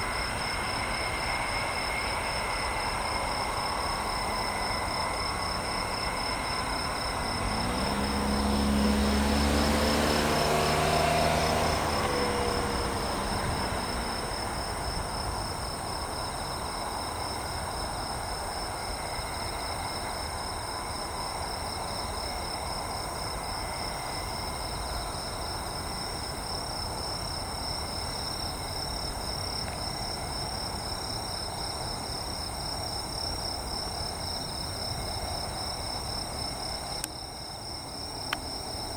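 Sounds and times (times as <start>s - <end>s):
insects chirring: 0.0s - 38.9s
vehicle passing by: 6.5s - 15.9s.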